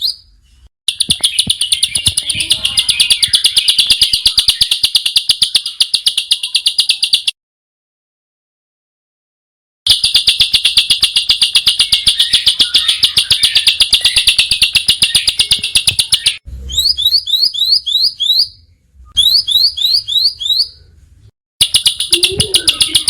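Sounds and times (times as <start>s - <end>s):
bird rising chirps: 0.0s - 7.3s, 10.3s - 21.0s, 21.6s - 23.0s
songbird rapid high notes: 0.9s - 7.3s, 9.9s - 18.1s, 21.6s - 23.0s.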